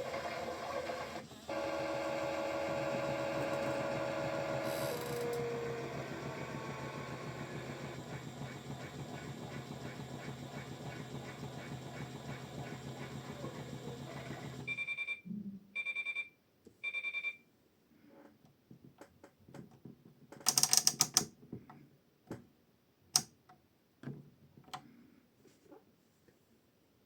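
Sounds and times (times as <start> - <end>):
motor hum: 0.0 - 14.7
scattered clicks: 20.4 - 21.3.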